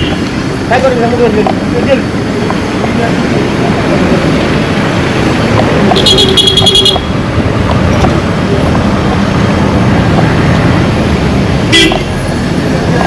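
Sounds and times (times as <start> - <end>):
busy road traffic: 0.0 - 13.0
vehicle horn honking: 6.0 - 7.1, 11.7 - 12.1.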